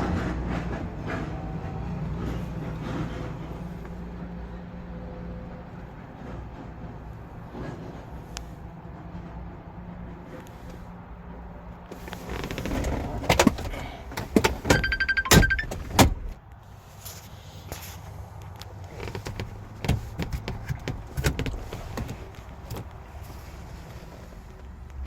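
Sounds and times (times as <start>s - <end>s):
rustling: 11.9s - 13.9s
clicks and thunks in truck cab: 11.9s - 16.4s, 17.8s - 23.7s
rapid electronic beeping chime: 14.7s - 15.7s.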